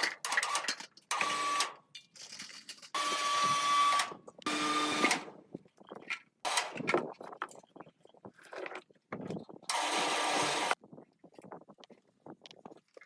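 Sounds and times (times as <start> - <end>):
power tool motor whirring: 9.7 - 10.8.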